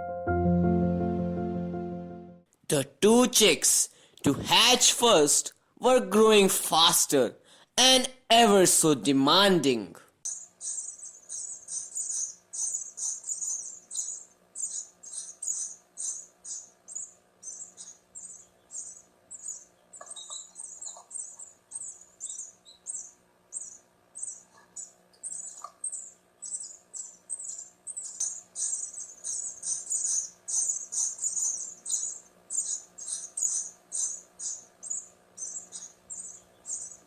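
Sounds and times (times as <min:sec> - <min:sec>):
nestlings chirping: 0:10.3 - 0:37.0.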